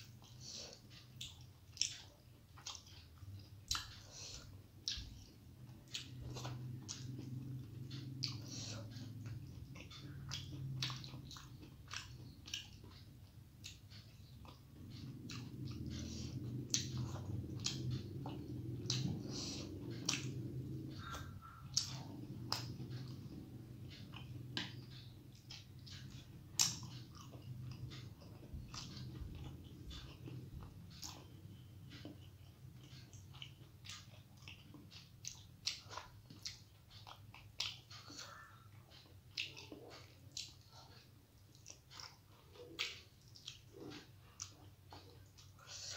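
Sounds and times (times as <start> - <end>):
low steady hum: 0.0 - 45.9
person chewing food: 0.0 - 45.9
wet lip smacks and mouth clicks: 24.1 - 31.3.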